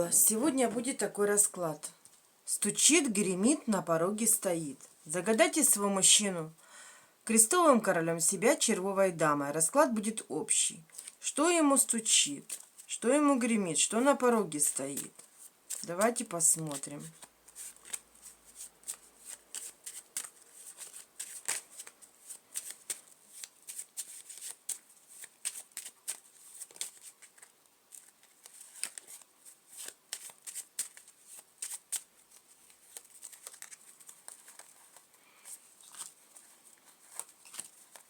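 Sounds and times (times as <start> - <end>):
playing cards being shuffled: 14.6 - 38.0.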